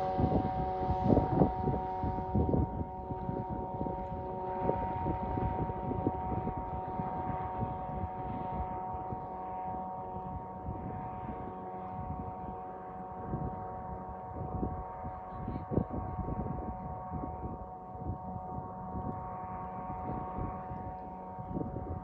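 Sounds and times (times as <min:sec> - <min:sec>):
boat engine humming: 0:00.0 - 0:15.3
wind on microphone: 0:00.0 - 0:22.0.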